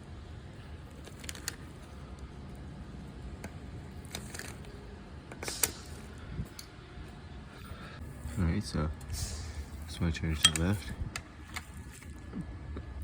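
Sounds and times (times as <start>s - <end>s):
low background hum: 0.0s - 13.0s
tools clicking and tapping: 10.4s - 10.8s.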